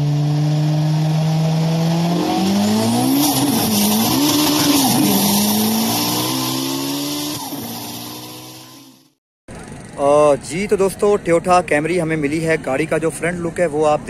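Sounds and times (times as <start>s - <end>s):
sports car engine revving: 0.0s - 9.0s.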